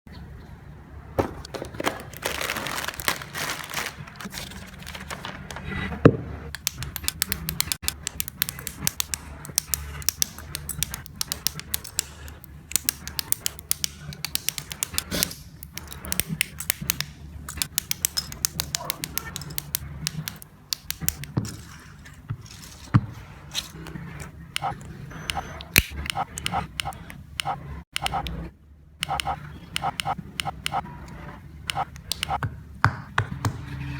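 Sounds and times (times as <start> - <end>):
plastic parts clicking and snapping: 6.5 - 22.9, 23.5 - 28.4.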